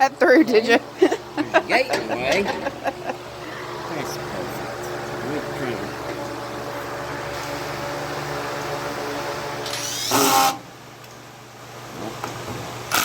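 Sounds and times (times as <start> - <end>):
steady machine hum: 0.0 - 13.0
power drill driving a screw: 9.6 - 10.6.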